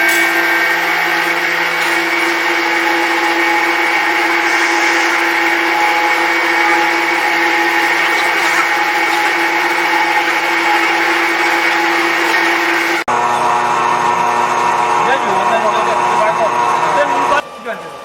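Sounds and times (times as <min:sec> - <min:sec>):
milling machine whine: 0:00.0 - 0:18.0.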